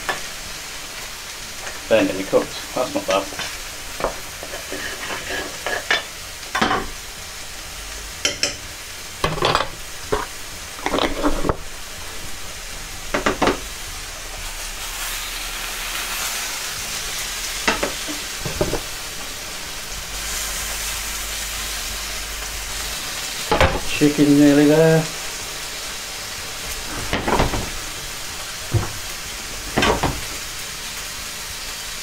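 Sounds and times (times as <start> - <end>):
chicken sizzling in a pan: 0.0 - 32.0
utensils clattering against pans: 3.3 - 7.0, 8.2 - 11.6, 26.6 - 28.0, 28.7 - 30.5.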